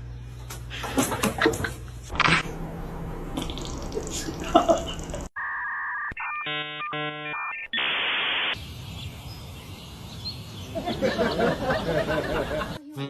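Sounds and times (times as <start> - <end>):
two-note electronic tone: 5.4 - 7.8
buzzy electronic beeps: 5.4 - 8.6.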